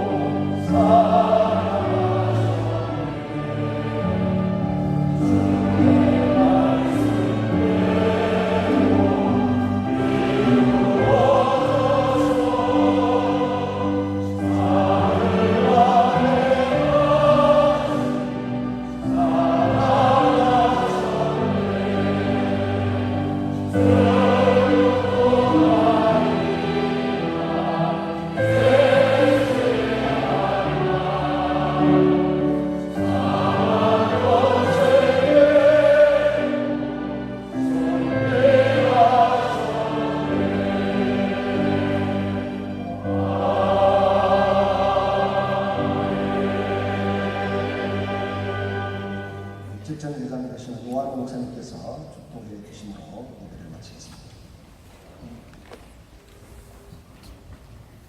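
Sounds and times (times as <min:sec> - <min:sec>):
instrumental accompaniment: 0:00.0 - 0:51.3
choir singing a hymn: 0:00.0 - 0:53.7.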